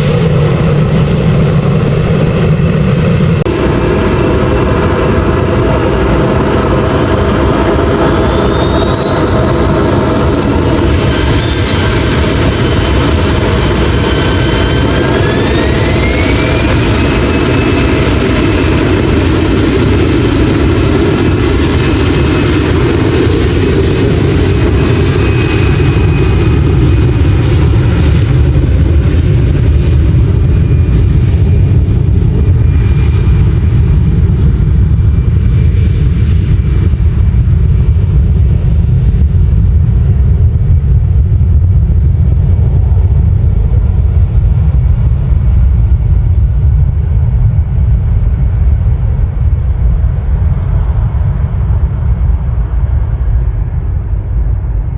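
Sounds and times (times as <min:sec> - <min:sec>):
deep jet engine rumble: 0:00.0 - 0:54.9
jet engine whine: 0:00.0 - 0:54.9.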